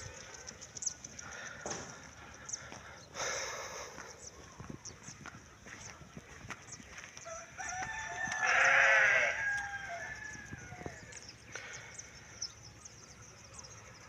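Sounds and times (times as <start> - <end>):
rooster crowing: 7.2 - 11.2.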